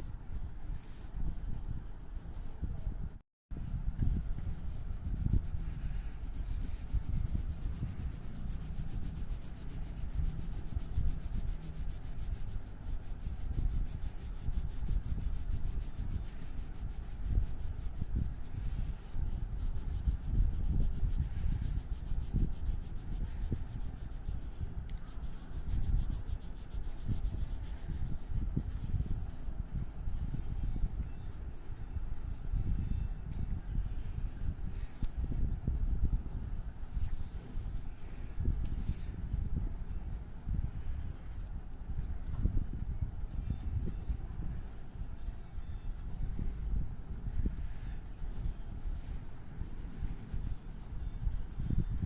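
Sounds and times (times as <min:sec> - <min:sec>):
colouring strokes rubbing on paper: 0:04.0 - 0:29.7, 0:45.1 - 0:51.5.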